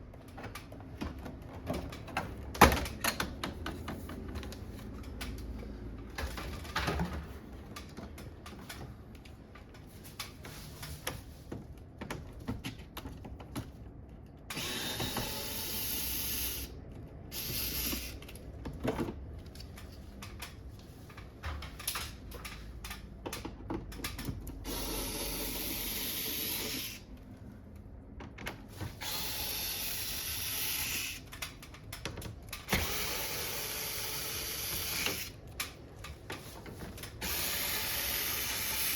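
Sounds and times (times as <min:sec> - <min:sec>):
cordless screwdriver running: 0:14.6 - 0:16.7, 0:24.7 - 0:27.0, 0:29.0 - 0:31.2, 0:32.8 - 0:35.3, 0:37.2 - 0:38.9.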